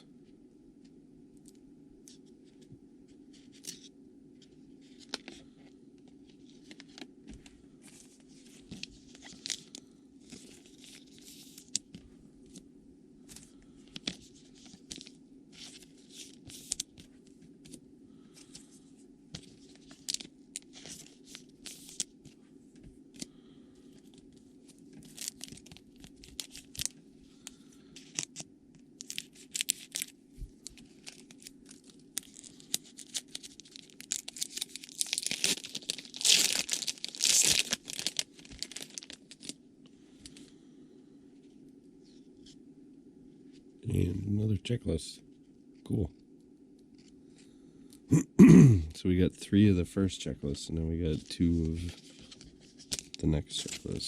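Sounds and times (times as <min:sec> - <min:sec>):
steady low hum: 0:00.0 - 0:54.0
trading cards rustling: 0:13.2 - 0:22.4, 0:23.1 - 0:40.5, 0:49.5 - 0:54.0.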